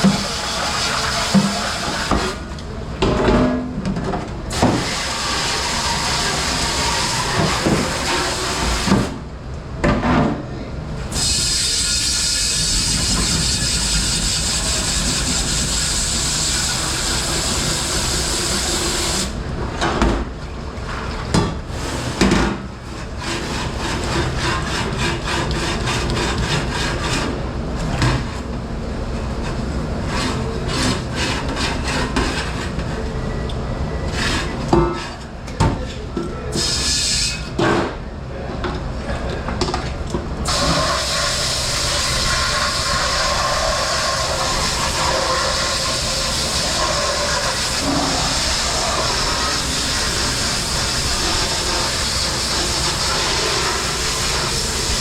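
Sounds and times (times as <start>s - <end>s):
dishwasher rushing wash noise: 0.0s - 55.0s
dishes and racks clattering: 34.1s - 36.3s.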